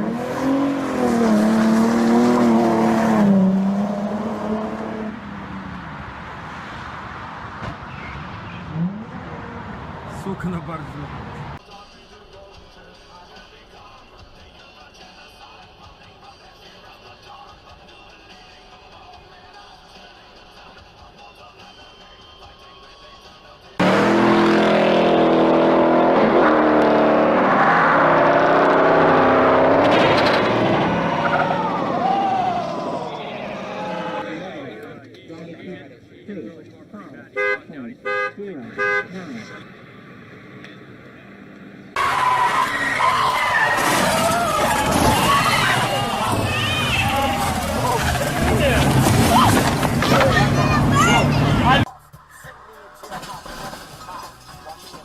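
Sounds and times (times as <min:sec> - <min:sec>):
car engine under throttle: 0:00.0 - 0:10.2, 0:23.8 - 0:32.0
road noise: 0:00.0 - 0:55.0.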